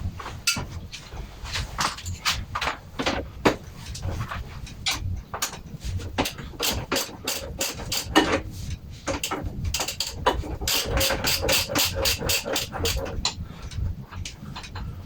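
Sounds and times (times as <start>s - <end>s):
ratchet wrench clicking: 6.3s - 8.2s, 9.2s - 13.0s.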